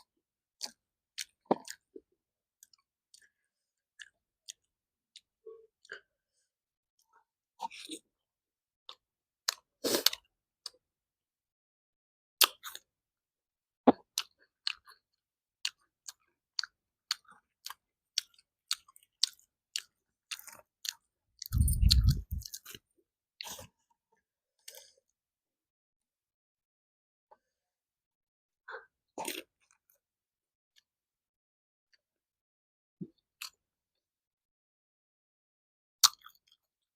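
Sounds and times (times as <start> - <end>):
chewing food crunches: 15.7 - 22.8, 36.0 - 36.6
wet mouth clicks: 17.7 - 22.8, 36.0 - 36.4.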